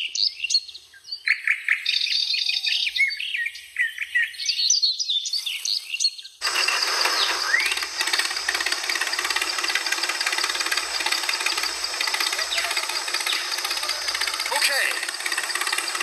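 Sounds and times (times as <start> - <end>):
small birds chirping: 0.0 - 16.0
loud mechanical rattle: 6.4 - 16.0.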